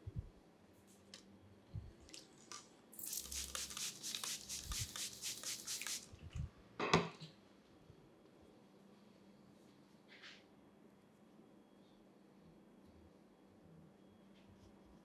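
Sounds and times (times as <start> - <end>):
rapid rasping strokes: 3.0 - 6.0.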